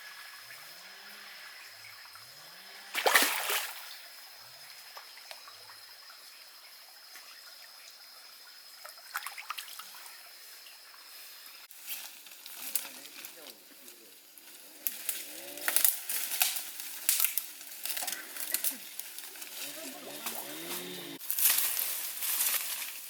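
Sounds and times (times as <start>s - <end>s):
water trickling and splashing: 0.0s - 13.5s, 14.2s - 23.0s.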